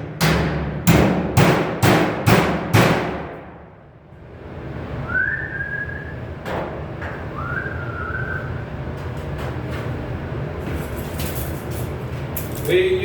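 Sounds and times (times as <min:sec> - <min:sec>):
hammer blows on sheet metal: 0:00.0 - 0:03.8
person whistling short notes: 0:05.1 - 0:06.2, 0:07.3 - 0:08.5.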